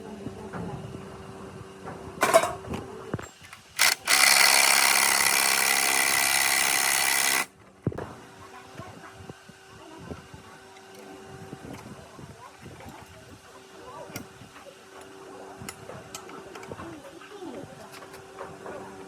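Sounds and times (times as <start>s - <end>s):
metal parts clattering: 2.2s - 2.6s
handheld power tool running: 3.8s - 7.5s.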